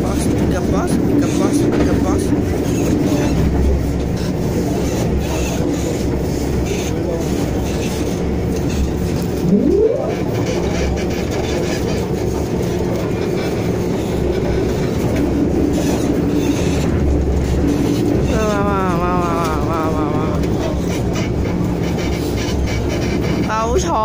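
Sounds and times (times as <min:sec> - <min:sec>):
train rumbling on rails: 0:00.0 - 0:24.0
rising motor whine: 0:09.4 - 0:10.7.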